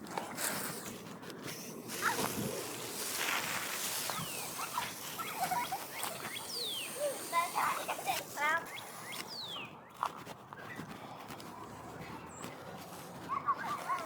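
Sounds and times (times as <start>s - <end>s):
steady hiss: 1.7s - 9.2s
birds whistling and chirping: 3.9s - 11.0s.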